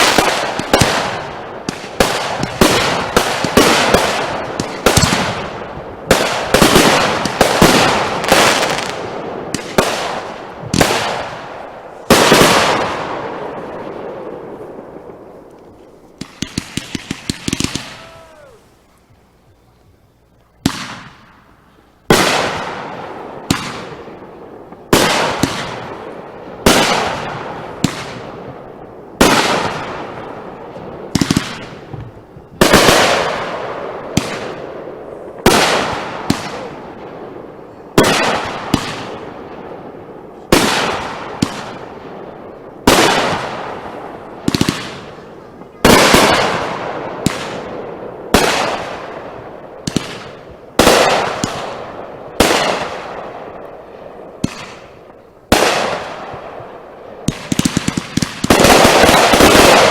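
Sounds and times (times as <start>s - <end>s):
fireworks bangs with hissing tails: 0.0s - 59.9s
small firework pops: 20.4s - 21.4s, 49.8s - 51.7s.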